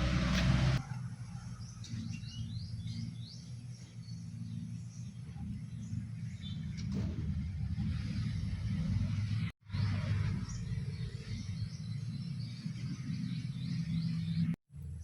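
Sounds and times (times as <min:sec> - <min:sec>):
bird chirping: 0:01.2 - 0:06.9, 0:09.8 - 0:15.0.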